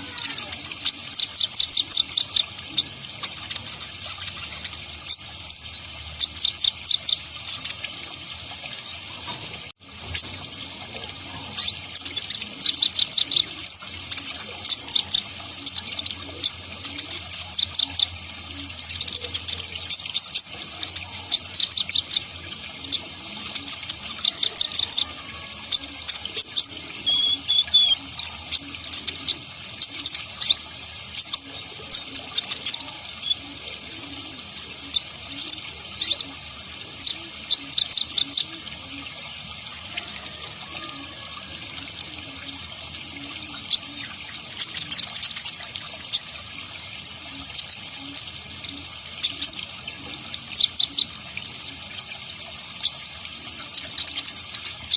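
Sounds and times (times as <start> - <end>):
bird chirping rapidly: 0.0 - 7.8, 25.7 - 33.6.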